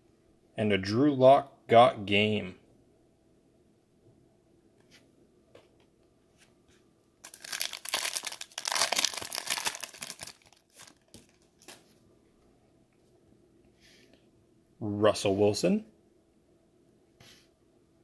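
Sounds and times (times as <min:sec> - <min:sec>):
foil pack tearing and crinkling: 0:07.2 - 0:11.8.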